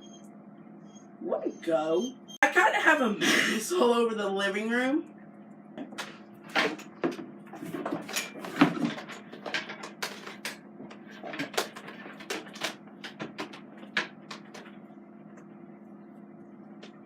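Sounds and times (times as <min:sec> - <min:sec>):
faint steady hum: 0:00.0 - 0:17.0
objects clicking and knocking: 0:05.8 - 0:14.8.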